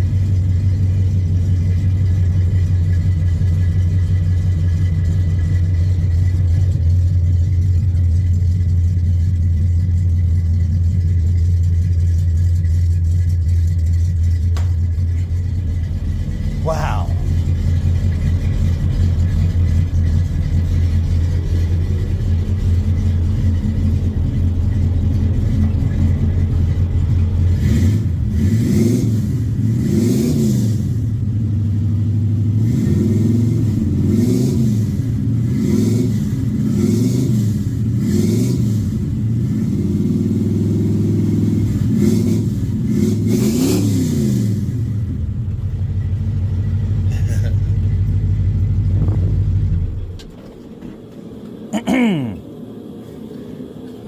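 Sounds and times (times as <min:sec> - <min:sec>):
truck engine idling: 0:00.0 - 0:29.8, 0:44.5 - 0:54.0
truck engine revving: 0:00.0 - 0:54.0.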